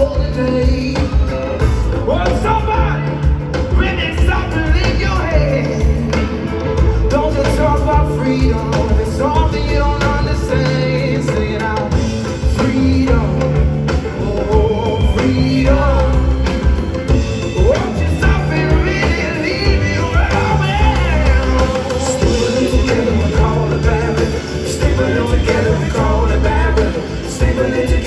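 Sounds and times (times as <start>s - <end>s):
live rock band playing: 0.0s - 28.0s
person singing: 0.0s - 28.0s.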